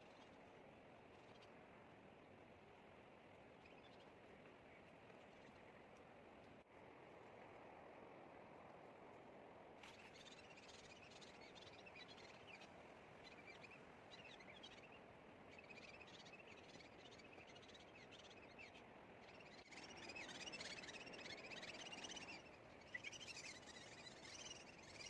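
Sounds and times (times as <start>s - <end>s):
steady background hiss: 0.0s - 25.0s
small birds chirping: 3.5s - 5.8s, 9.8s - 25.0s.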